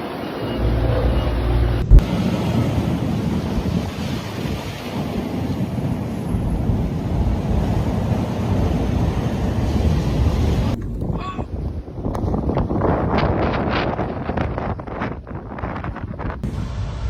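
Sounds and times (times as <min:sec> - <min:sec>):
strong wind buffeting microphone: 0:00.9 - 0:17.0.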